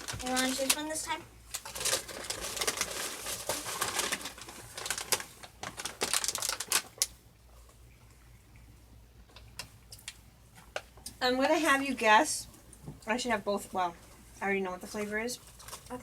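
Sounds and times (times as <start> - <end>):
plastic packaging crinkling: 0.0 - 7.2, 15.4 - 16.0.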